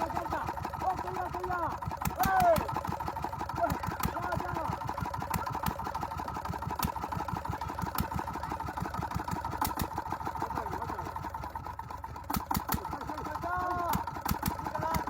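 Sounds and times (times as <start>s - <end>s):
diesel engine knocking: 0.0s - 15.0s
sharp clicks: 2.0s - 2.9s, 9.5s - 10.0s, 12.3s - 13.0s, 13.9s - 15.0s.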